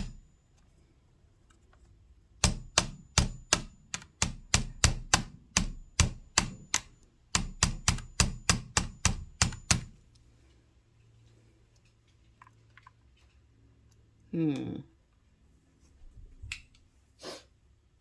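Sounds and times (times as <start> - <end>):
sharp metal-on-metal taps: 0.0 - 0.3, 2.4 - 10.0.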